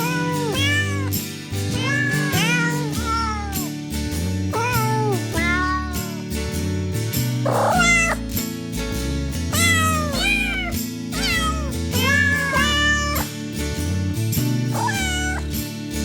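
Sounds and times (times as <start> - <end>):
cat meowing: 0.0 - 3.7, 4.5 - 6.2, 7.5 - 8.3, 9.5 - 13.3, 14.7 - 15.5.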